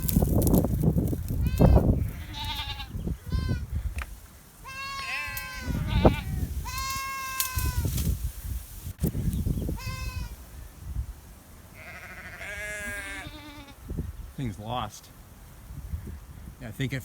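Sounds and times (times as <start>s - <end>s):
wind rumble on microphone: 0.0s - 4.2s, 5.2s - 11.3s, 12.5s - 14.4s, 15.6s - 16.6s
goat bleating: 1.4s - 3.6s, 4.6s - 7.9s, 9.8s - 10.4s, 11.8s - 13.8s.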